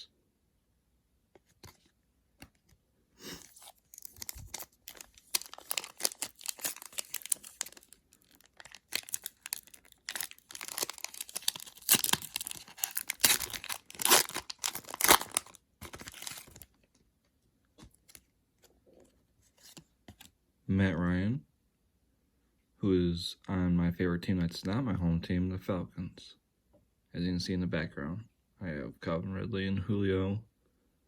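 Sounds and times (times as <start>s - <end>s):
wrapper tearing and crinkling: 3.3s - 16.8s.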